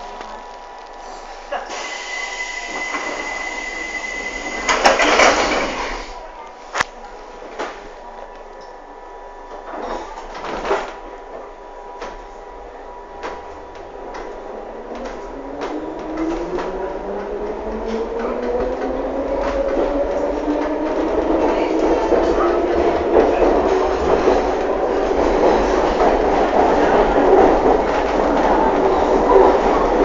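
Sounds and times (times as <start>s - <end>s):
train traction motors whining: 0.0s - 6.2s.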